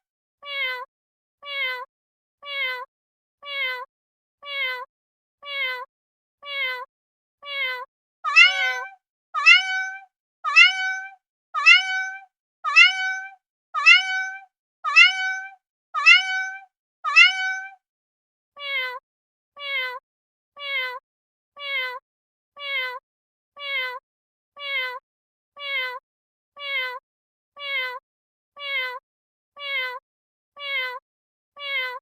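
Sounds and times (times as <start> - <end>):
cat meowing: 6.4 - 17.8, 29.6 - 30.0, 30.6 - 31.0, 31.6 - 32.0.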